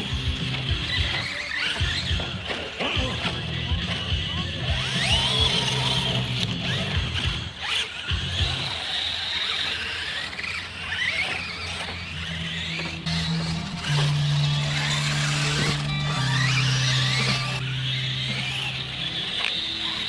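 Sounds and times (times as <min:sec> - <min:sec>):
toy truck motors whining: 0:00.0 - 0:20.0
low hum: 0:10.6 - 0:20.0.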